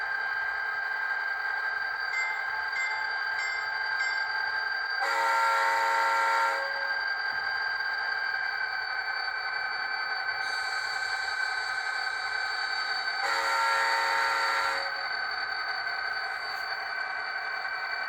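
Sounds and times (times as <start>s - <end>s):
horn blast: 13.2s - 15.0s.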